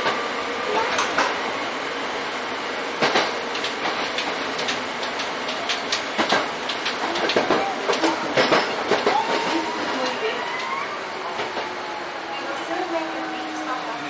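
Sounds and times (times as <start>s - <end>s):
train wheels clicking over rail joints: 0.9s - 1.4s, 3.0s - 10.7s.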